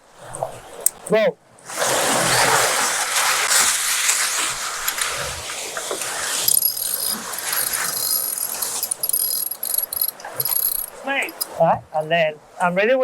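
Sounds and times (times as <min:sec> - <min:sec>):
wind: 0:00.0 - 0:13.0
water rushing over deck: 0:01.6 - 0:11.4
winch whirring and clicking: 0:05.8 - 0:11.5.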